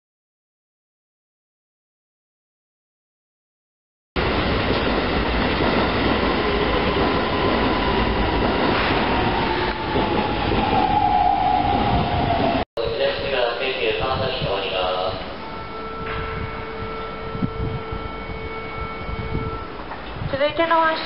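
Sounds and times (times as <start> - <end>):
electric train rumble: 4.2 - 20.4
train whine falling in pitch: 15.2 - 20.0.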